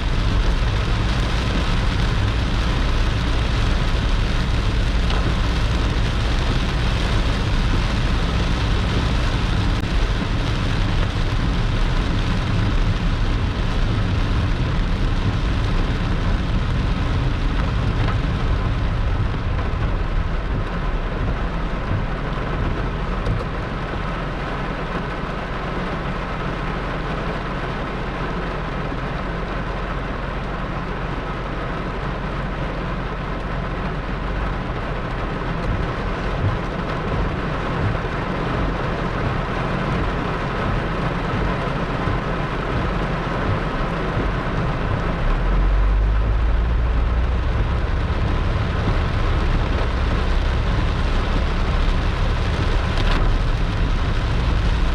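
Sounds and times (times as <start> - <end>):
heavy rain pouring: 0.0 - 54.9
low thunder rumble: 35.2 - 54.9.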